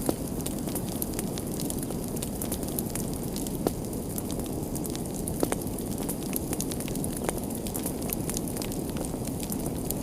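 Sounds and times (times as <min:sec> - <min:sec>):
wood fire crackling: 0:00.0 - 0:10.0.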